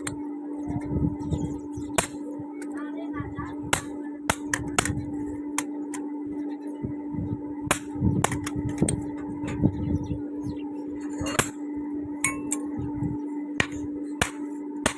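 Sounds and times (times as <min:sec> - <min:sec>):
steady low hum: 0:00.0 - 0:14.9
hammer striking metal anvil: 0:11.2 - 0:11.6, 0:12.2 - 0:12.6, 0:13.6 - 0:14.9.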